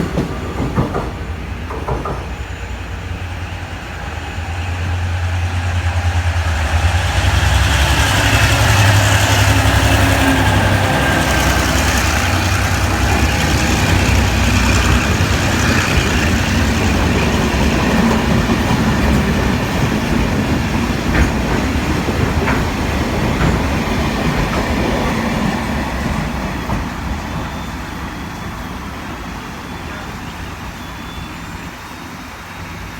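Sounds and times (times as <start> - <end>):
locomotive engine droning: 0.0 - 32.9
wagons rattling over rails: 7.0 - 27.8.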